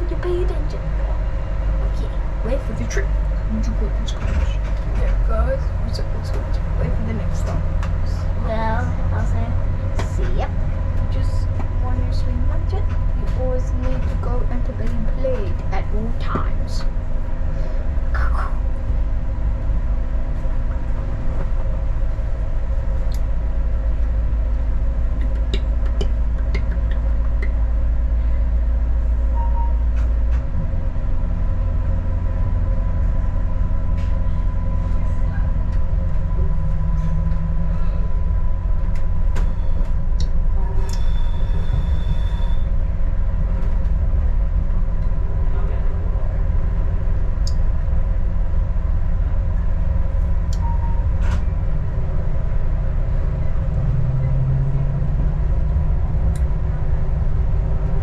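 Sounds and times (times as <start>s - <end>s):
railcar engine drone: 0.0s - 58.0s.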